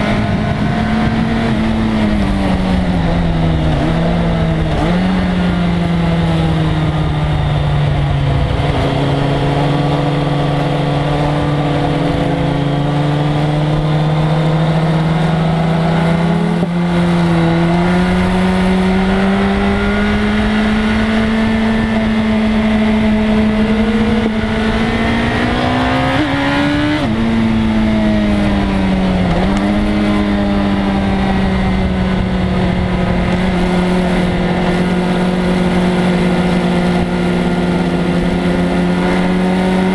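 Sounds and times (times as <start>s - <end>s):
motorcycle engine at speed: 0.0s - 39.9s
wind noise: 0.0s - 39.9s.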